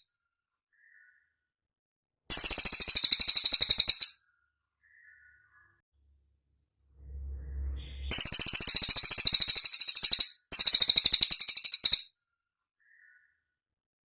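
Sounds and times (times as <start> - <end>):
faint low rumble: 6.0 - 9.1.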